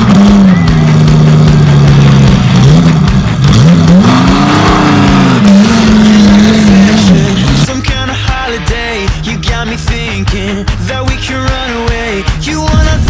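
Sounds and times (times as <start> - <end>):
car engine revving: 0.0 - 10.2
rock music: 0.0 - 13.0.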